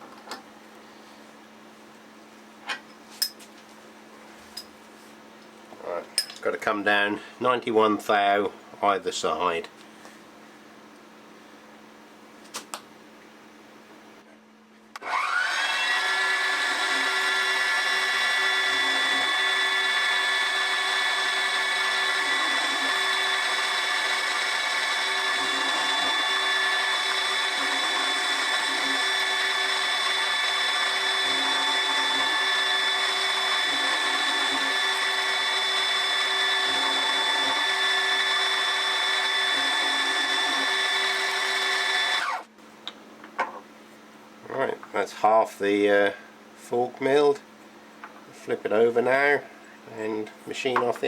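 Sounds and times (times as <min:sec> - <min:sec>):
milling machine whine: 0:15.0 - 0:42.4.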